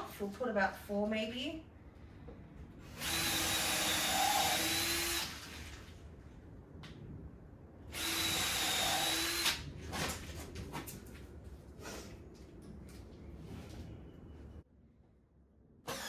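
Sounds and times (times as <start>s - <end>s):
power drill driving screws: 2.9s - 5.4s, 7.9s - 9.6s.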